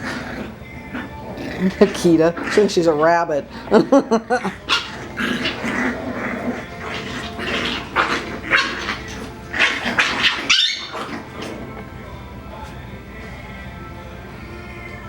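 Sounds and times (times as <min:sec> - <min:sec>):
puppies growling and yipping: 0:00.0 - 0:12.8
puppy yelp: 0:07.7 - 0:11.2.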